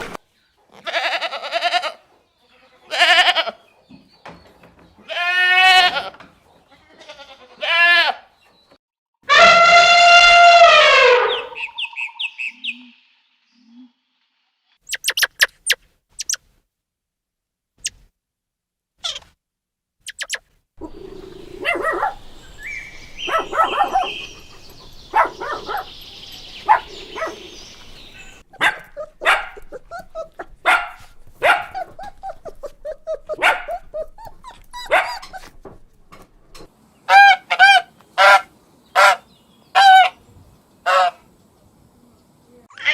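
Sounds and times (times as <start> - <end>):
dog barking and yipping: 20.8 - 35.7
drawn-out animal call: 20.8 - 35.8.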